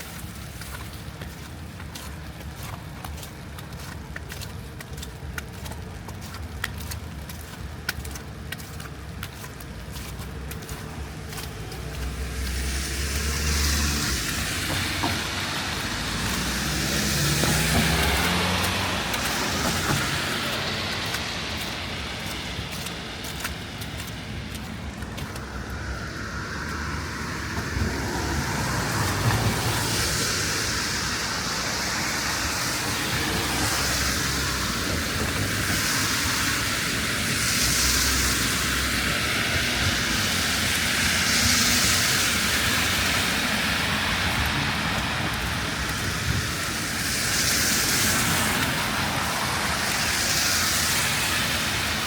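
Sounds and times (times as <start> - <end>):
low rumble of traffic engines: 0.0 - 52.0
car tyre hiss: 11.8 - 24.8, 25.4 - 52.0.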